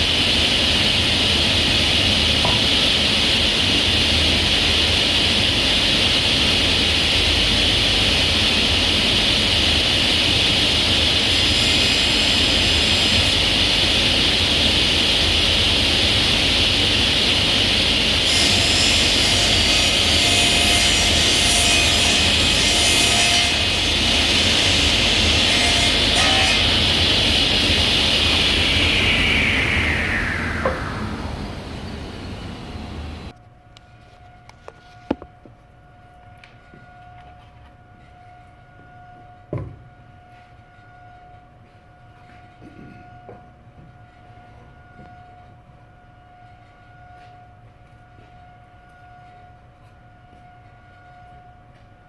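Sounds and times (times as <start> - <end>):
power tool cutting wood: 10.4 - 14.8, 16.8 - 33.0.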